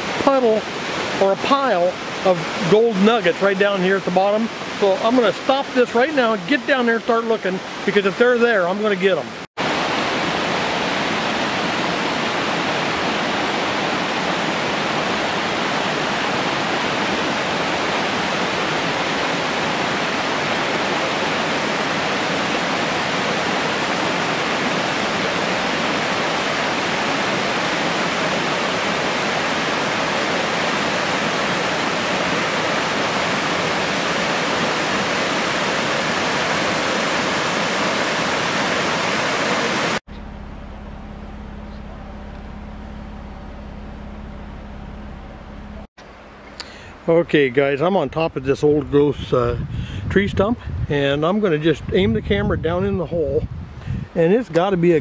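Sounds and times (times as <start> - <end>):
waterfall rushing: 0.0 - 40.6
low hum: 40.1 - 47.1.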